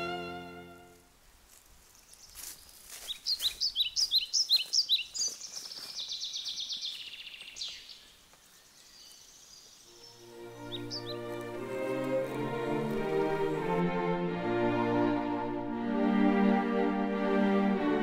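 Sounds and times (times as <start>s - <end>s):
songbird chirping and trilling: 1.8s - 13.8s.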